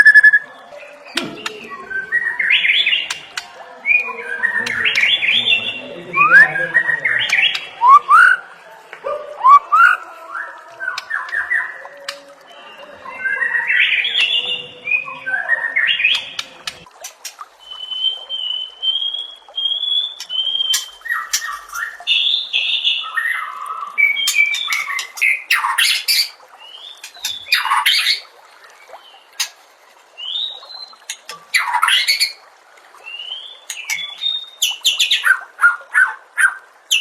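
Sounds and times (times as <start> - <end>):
bird singing whistled phrases: 0.0 - 3.2, 3.9 - 8.4, 9.4 - 16.5, 17.6 - 28.2.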